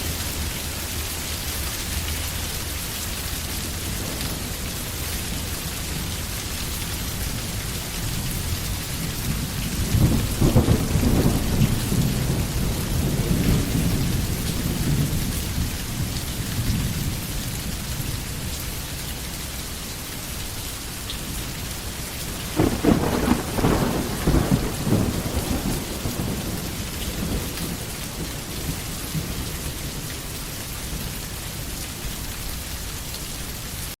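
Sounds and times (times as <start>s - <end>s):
steady rain: 0.0s - 34.0s
thunder rumbling: 3.5s - 18.4s, 22.2s - 30.3s.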